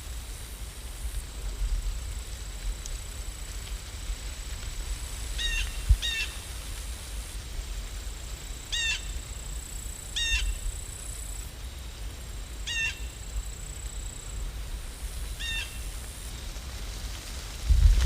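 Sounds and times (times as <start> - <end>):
bird calling: 12.7 - 13.1.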